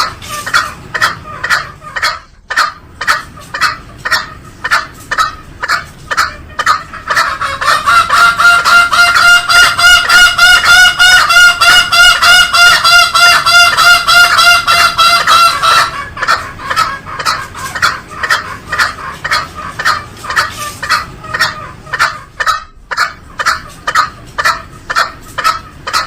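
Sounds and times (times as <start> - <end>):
junglefowl calling: 0.0 - 26.0.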